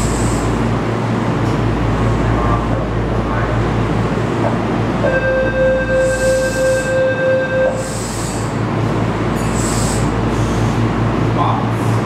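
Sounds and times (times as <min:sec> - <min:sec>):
electric train humming: 0:00.0 - 0:12.0
buzzer-like tone: 0:05.0 - 0:07.9.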